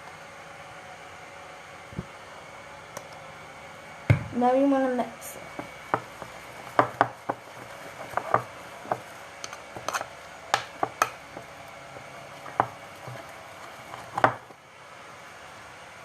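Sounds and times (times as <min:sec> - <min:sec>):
slime stirred in a bowl: 0:05.4 - 0:14.6.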